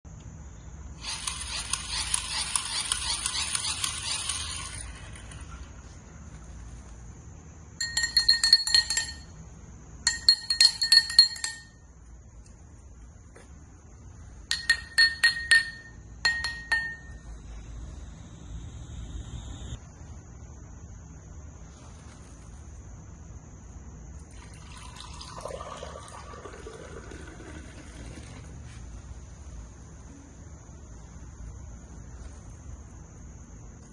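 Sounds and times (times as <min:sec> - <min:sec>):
high-pitched background hiss: 0:00.1 - 0:33.9
glass tapping and clinking: 0:07.8 - 0:09.4, 0:10.1 - 0:11.8, 0:14.5 - 0:17.3
water pouring into container: 0:24.3 - 0:28.4.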